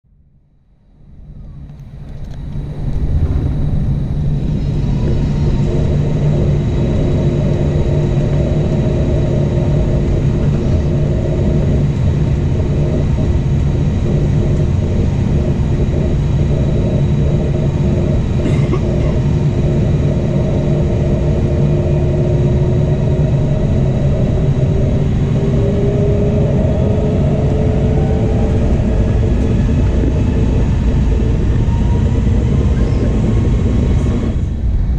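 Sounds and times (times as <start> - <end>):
jet engine and airflow rumble: 0.1 - 34.9
faint rising tone: 1.2 - 11.8.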